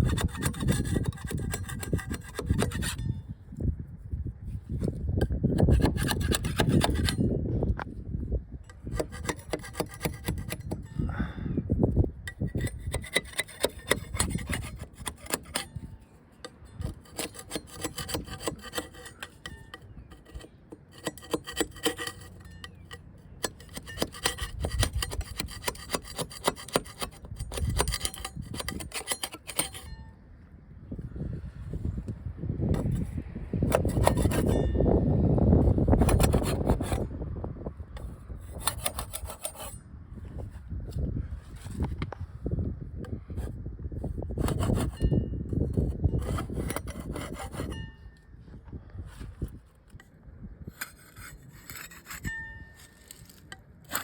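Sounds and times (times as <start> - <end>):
sanding boat hull: 0.0 - 3.0, 8.9 - 10.8, 16.8 - 19.4, 23.5 - 29.8, 46.2 - 47.7.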